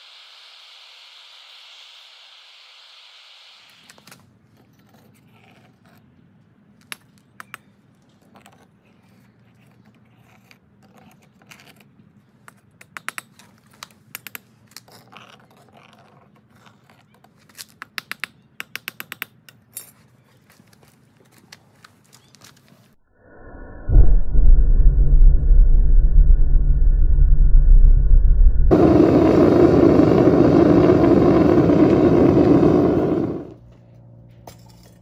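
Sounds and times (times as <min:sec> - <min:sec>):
low steady hum: 0:23.2 - 0:35.0.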